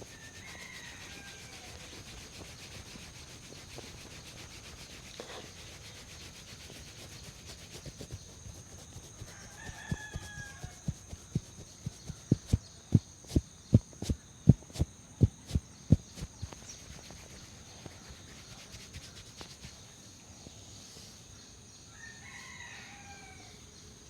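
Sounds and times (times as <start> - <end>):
hands patting on head: 7.1 - 19.8.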